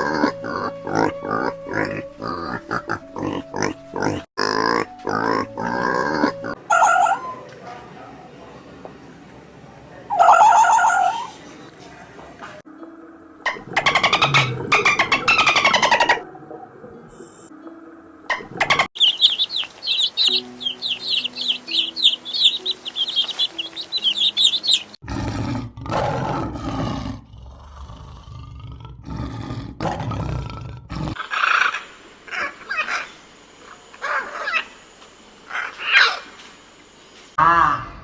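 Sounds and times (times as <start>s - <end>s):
high animal chirps: 19.0s - 25.0s.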